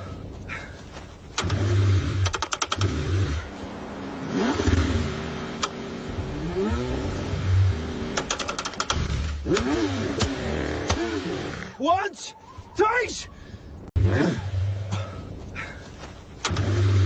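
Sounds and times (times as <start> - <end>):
car engine cranking: 1.3 - 11.7, 16.4 - 17.0
starter rapid clicks: 1.4 - 3.0, 8.1 - 10.4.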